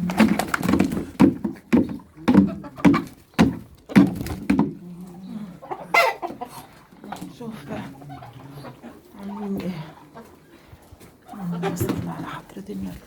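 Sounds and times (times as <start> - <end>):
dull knocks: 0.1 - 4.8.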